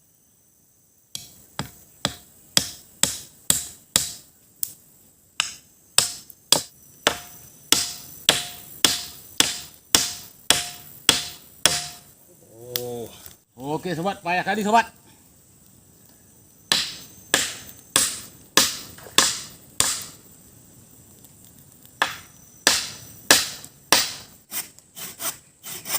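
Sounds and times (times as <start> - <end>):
machete striking wood: 1.2 - 4.2, 5.4 - 12.1, 16.7 - 20.2, 22.0 - 24.3.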